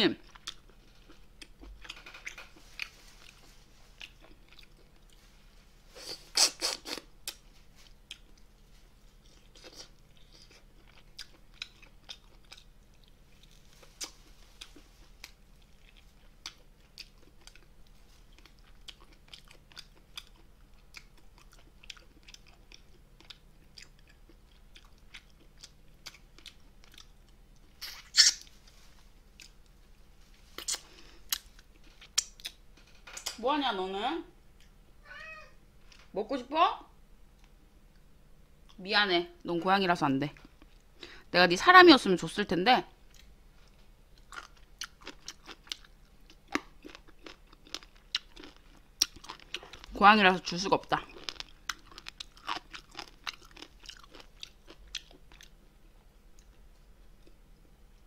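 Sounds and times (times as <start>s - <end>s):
chewing and biting food: 0.2s - 5.6s, 6.4s - 8.5s, 9.1s - 28.8s, 29.4s - 29.7s, 43.1s - 50.0s, 50.9s - 57.4s
wet mouth clicks: 27.8s - 28.5s, 30.6s - 31.5s.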